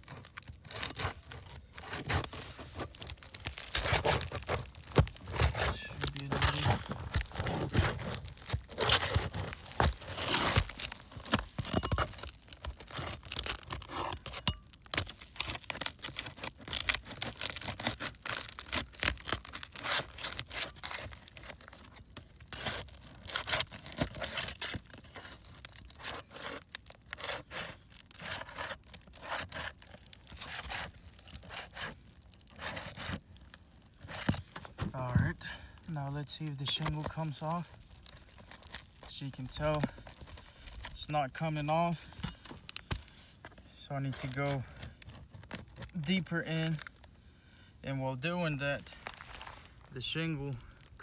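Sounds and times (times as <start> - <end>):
metal scraping on shingles: 0.6 - 16.4, 33.9 - 46.7.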